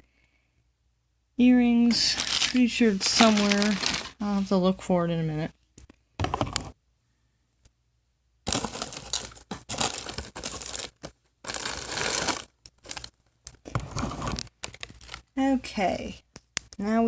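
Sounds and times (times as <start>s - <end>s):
plastic packaging crinkling and tearing: 1.9s - 4.3s, 8.5s - 15.4s.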